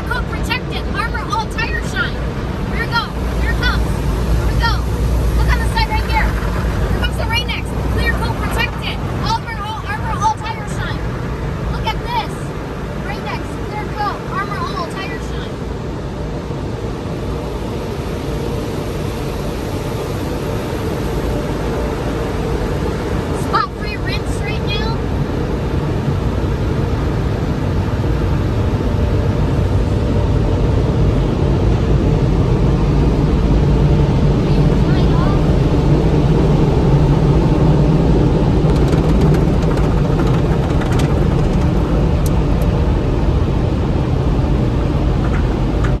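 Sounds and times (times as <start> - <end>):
air dryer blowers rushing: 0.0 - 46.0
car wash machinery roaring: 0.0 - 46.0
faint steady hum: 0.0 - 46.0.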